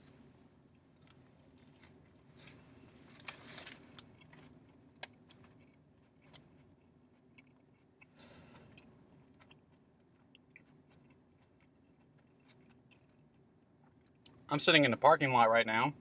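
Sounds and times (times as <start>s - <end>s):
faint chewing: 0.0s - 14.4s.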